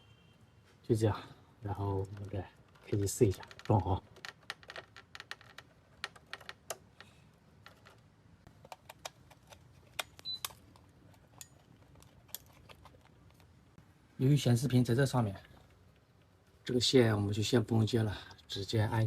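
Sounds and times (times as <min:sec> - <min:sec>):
plastic parts clicking and tapping: 0:02.0 - 0:12.9.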